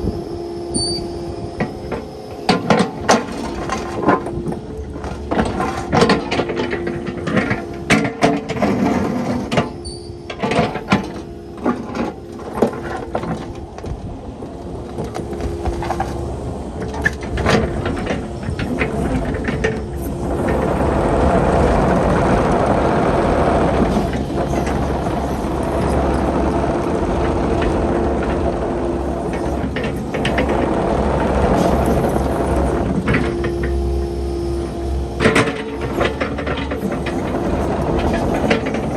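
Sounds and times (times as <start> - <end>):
excavator diesel engine humming: 0.0 - 38.9
steady rushing noise: 13.2 - 38.9.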